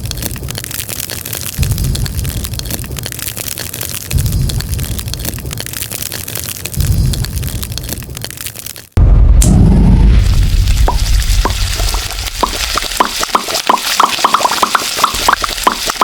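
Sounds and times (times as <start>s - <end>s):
fire crackling and popping: 0.0s - 16.0s
low rumble: 1.6s - 3.1s, 9.0s - 13.0s.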